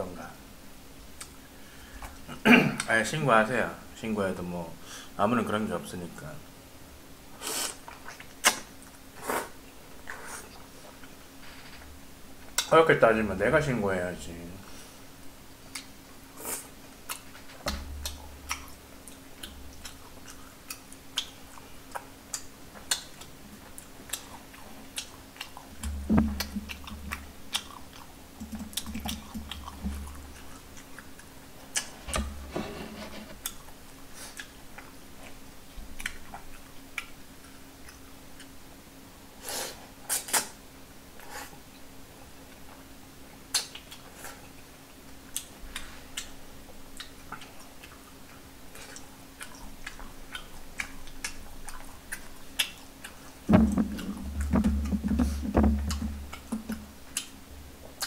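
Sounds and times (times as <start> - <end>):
faint steady hum: 0.0 - 58.0
chewing food: 17.0 - 32.2, 33.3 - 38.6, 42.5 - 58.0
low thumps: 25.8 - 27.2, 53.5 - 56.9.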